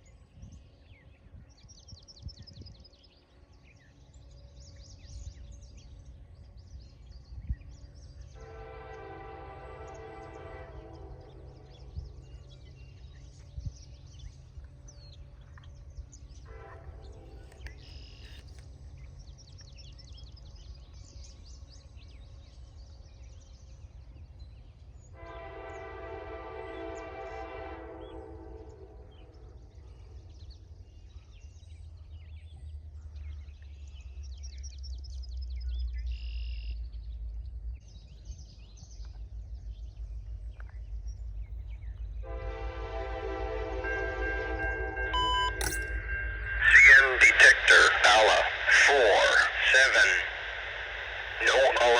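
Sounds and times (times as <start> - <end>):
freight train rumble: 2.3 - 51.9
locomotive air horn: 8.3 - 12.3, 16.4 - 17.7, 25.2 - 29.4, 42.2 - 47.2.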